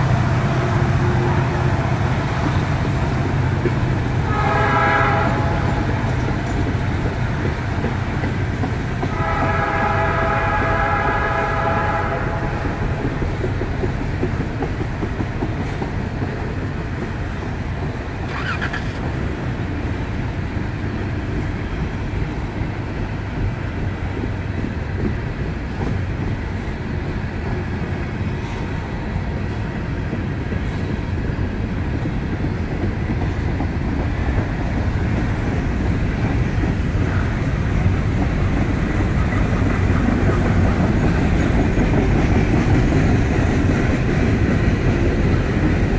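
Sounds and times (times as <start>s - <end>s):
distant locomotive horn: 0.0s - 2.4s, 4.1s - 6.2s, 9.0s - 13.1s
freight train wheels clattering: 0.0s - 45.9s.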